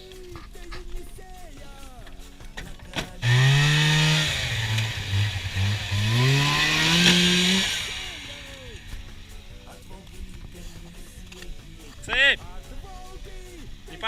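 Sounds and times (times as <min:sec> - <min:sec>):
snowmobile engine revving: 0:03.2 - 0:09.3.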